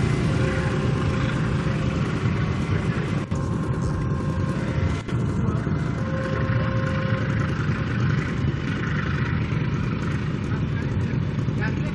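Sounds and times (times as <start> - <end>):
faint ringing tone: 0.0 - 10.0
train rumbling past: 0.0 - 11.9.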